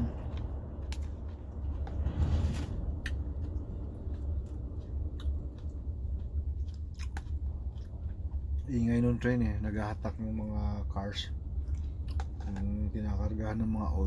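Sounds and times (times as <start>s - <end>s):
train rumbling: 0.0s - 11.6s.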